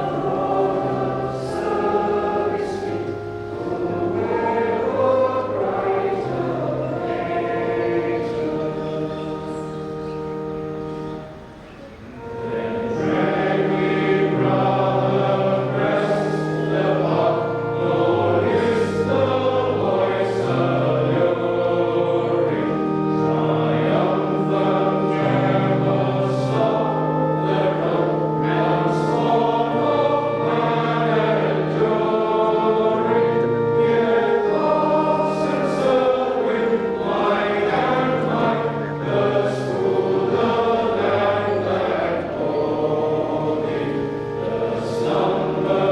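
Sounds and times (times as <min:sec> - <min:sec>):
choir singing a hymn: 0:00.0 - 0:45.9.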